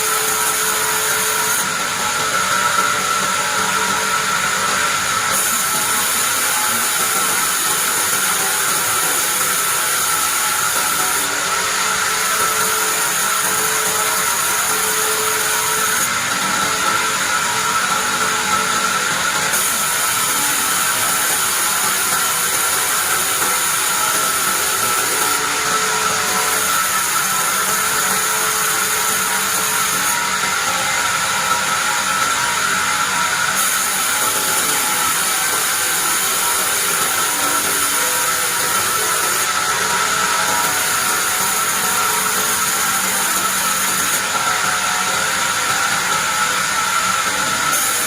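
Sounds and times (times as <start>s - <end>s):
band saw whining: 0.0s - 48.0s.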